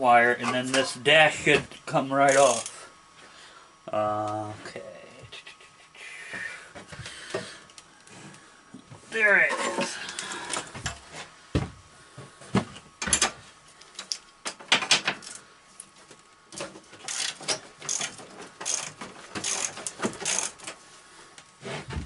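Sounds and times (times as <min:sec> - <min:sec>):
metal and plastic parts clicking: 0:02.3 - 0:02.8, 0:16.6 - 0:20.8.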